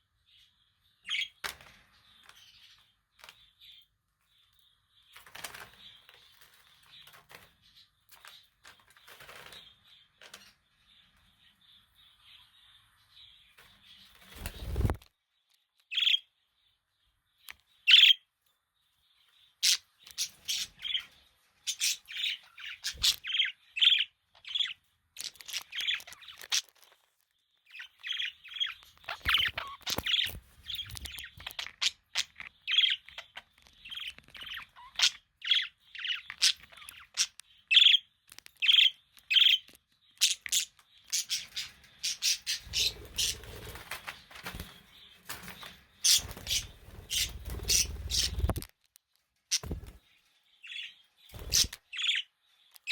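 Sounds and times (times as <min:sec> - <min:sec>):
budgerigars chirping: 0:17.9 - 0:18.2, 0:19.6 - 0:26.7, 0:27.7 - 0:43.9, 0:45.6 - 0:48.6, 0:50.6 - 0:52.9.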